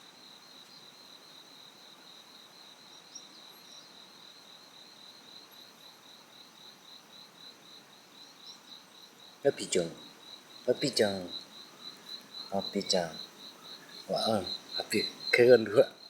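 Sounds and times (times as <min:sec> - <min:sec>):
cricket chirping: 0:00.0 - 0:16.0.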